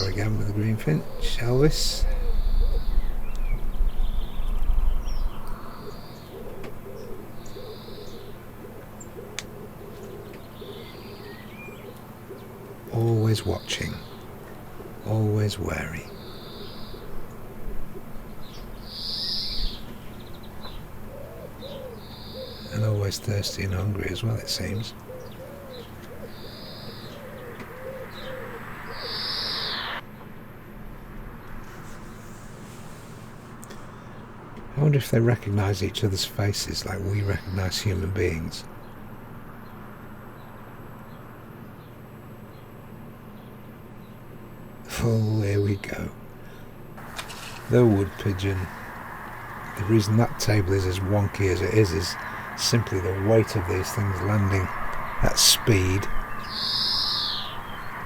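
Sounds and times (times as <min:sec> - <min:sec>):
bird wheezing calls: 0:00.0 - 0:15.1, 0:16.0 - 0:22.8, 0:24.6 - 0:30.0, 0:46.3 - 0:58.0
pigeons cooing: 0:00.0 - 0:30.0, 0:47.0 - 0:58.0
background hiss: 0:00.0 - 0:58.0
low rumble: 0:47.0 - 0:58.0.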